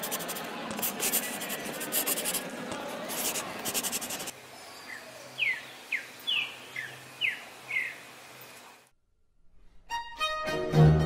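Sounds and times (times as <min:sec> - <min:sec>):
pencil scratching on paper: 0:00.0 - 0:04.3.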